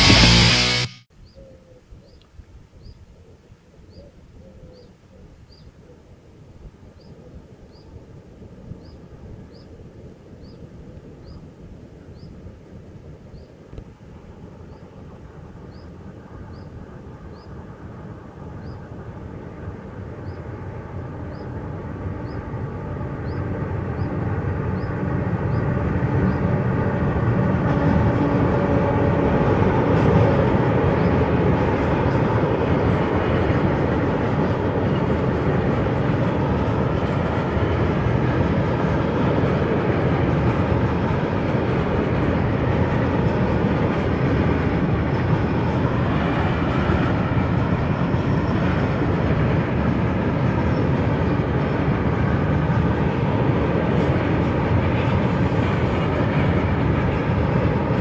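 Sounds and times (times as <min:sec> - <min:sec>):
freight train passing: 0:00.0 - 0:01.1, 0:07.7 - 0:58.0.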